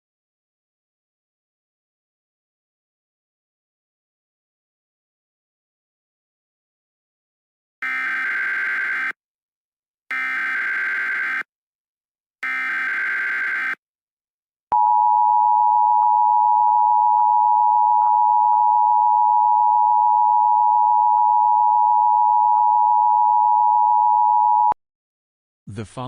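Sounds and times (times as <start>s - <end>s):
loud steady alert tone: 7.8s - 9.2s, 10.1s - 11.5s, 12.4s - 13.8s.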